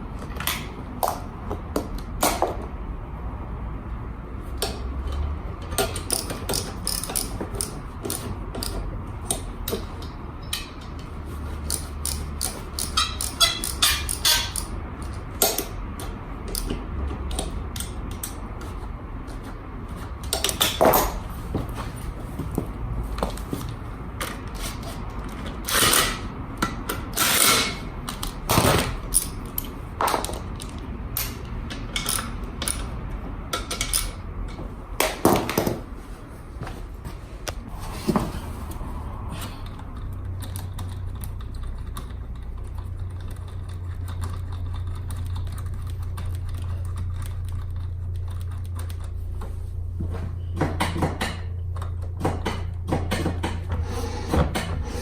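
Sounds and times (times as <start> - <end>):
steady low hum: 0.0 - 55.0
metal tools clanking: 11.7 - 14.8.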